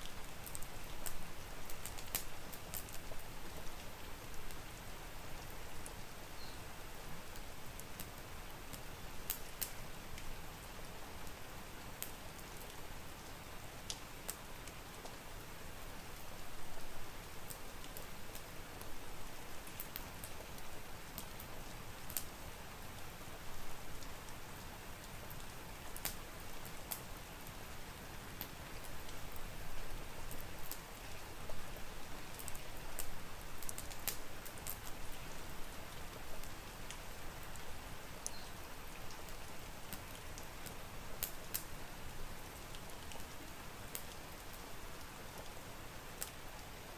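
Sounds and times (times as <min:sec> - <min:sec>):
wood fire crackling and popping: 0:00.0 - 0:04.6, 0:07.3 - 0:10.3, 0:11.2 - 0:15.2, 0:17.4 - 0:22.4, 0:25.0 - 0:27.6, 0:28.4 - 0:41.8, 0:42.4 - 0:44.6
steady rain: 0:00.0 - 0:46.9.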